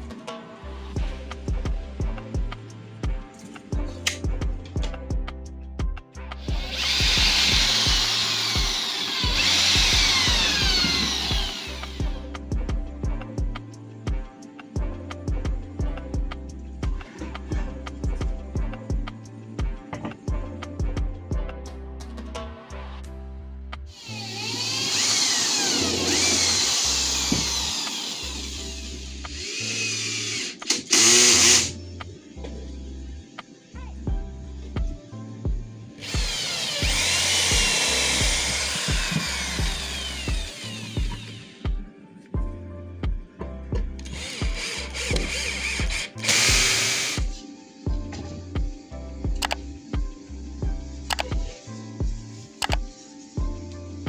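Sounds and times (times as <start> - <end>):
background music with steady beat: 0.0 - 54.0
power tool working wood: 6.4 - 12.2, 24.0 - 31.8, 36.0 - 41.8, 44.0 - 47.4.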